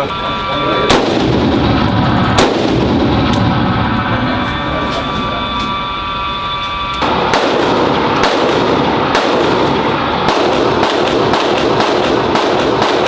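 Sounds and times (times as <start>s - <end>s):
handgun shots: 7.0s - 13.0s.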